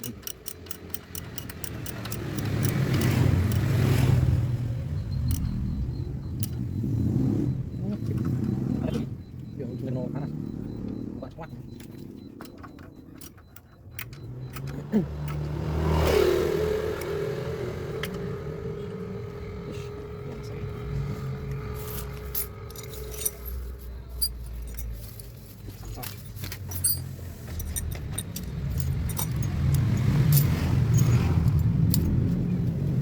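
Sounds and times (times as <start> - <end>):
car engine rumbling: 0.0 - 33.0
light metallic clinks: 19.9 - 32.9.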